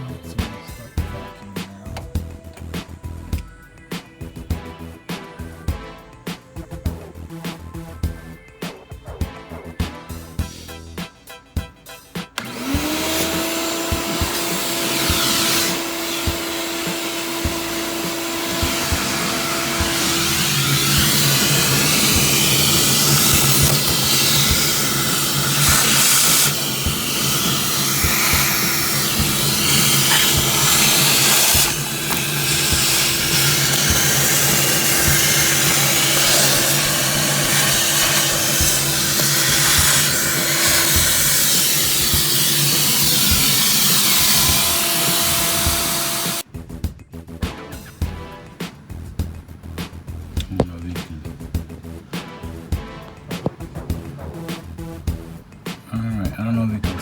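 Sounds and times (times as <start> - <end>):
shop vac motor whirring: 12.3 - 46.5.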